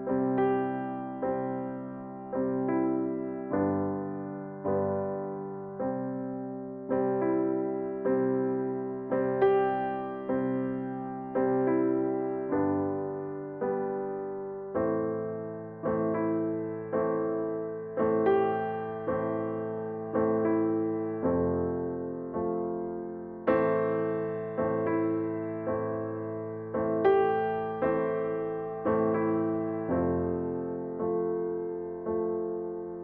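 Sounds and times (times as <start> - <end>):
slow solo piano chords: 0.0 - 33.0.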